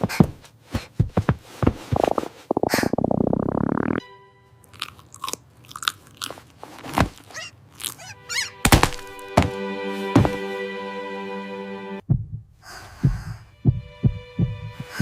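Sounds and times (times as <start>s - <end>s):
background music chord: 4.0s - 5.4s, 8.2s - 12.0s.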